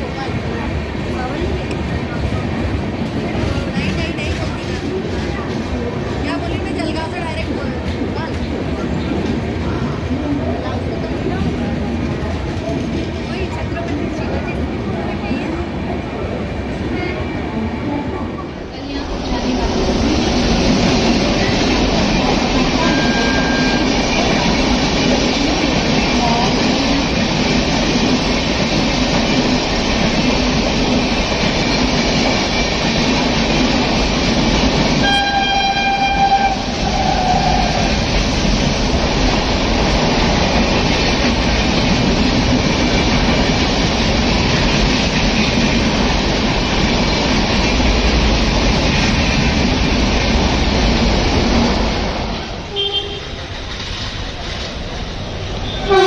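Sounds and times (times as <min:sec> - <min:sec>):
passenger train rumbling: 0:00.0 - 0:56.0
locomotive horn: 0:22.8 - 0:23.9, 0:35.0 - 0:37.8, 0:52.7 - 0:53.4, 0:55.6 - 0:56.0.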